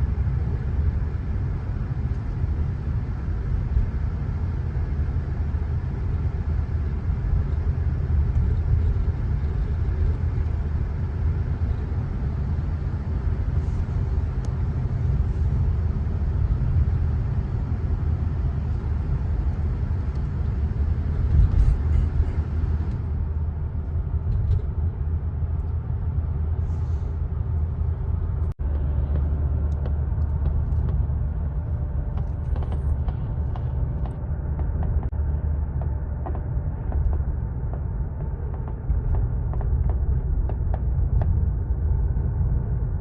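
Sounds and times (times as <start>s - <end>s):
low outdoor rumble: 0.0s - 43.0s.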